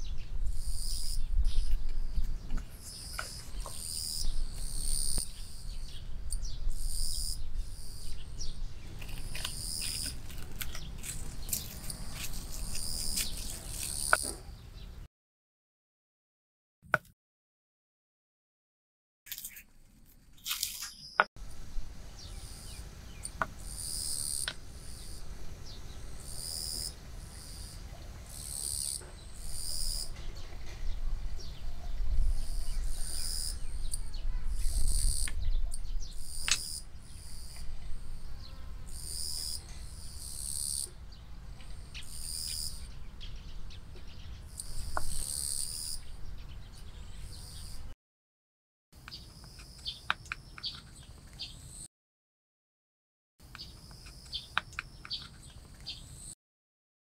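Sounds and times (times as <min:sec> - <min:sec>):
low outdoor rumble: 0:21.4 - 0:23.7.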